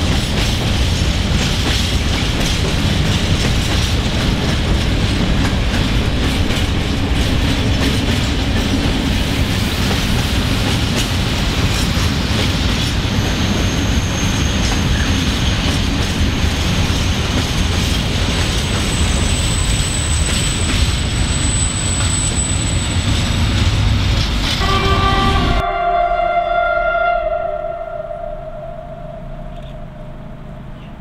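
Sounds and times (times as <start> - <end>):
high wheel squeal: 13.2 - 15.1, 18.8 - 23.4.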